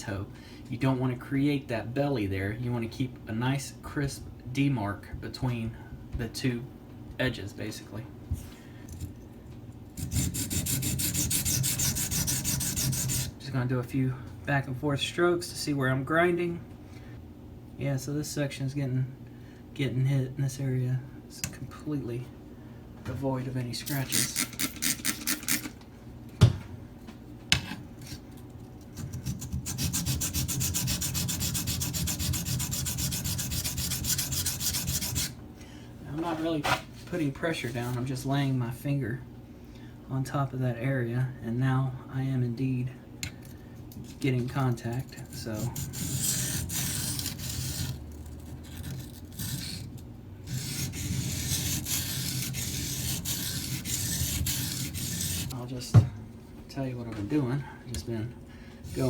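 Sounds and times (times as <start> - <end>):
knife scraping on whetstone: 10.0 - 13.3, 29.0 - 35.4, 45.3 - 55.6.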